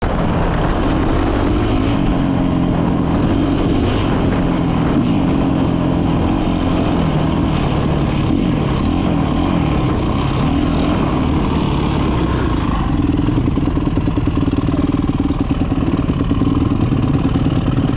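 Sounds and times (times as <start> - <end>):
dirt bike engine revving: 0.0 - 17.9
steady rushing noise: 0.0 - 17.9.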